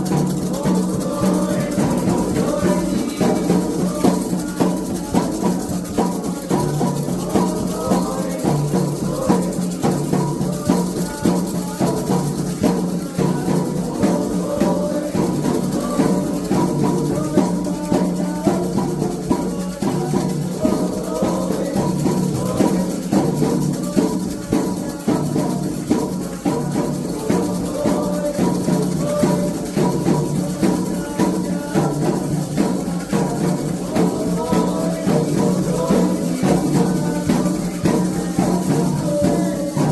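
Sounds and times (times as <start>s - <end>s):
chanting voices: 0.0s - 39.9s
hand drums: 0.0s - 39.9s
shakers: 0.0s - 39.9s.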